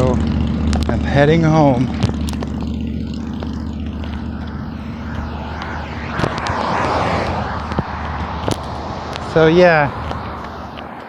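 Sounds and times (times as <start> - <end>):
low engine drone: 0.1 - 11.0
rush of noise: 2.4 - 11.0.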